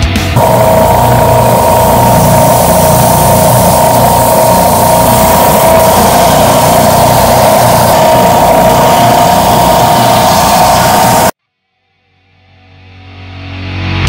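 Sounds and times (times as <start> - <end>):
belt sander whining: 0.4 - 11.4.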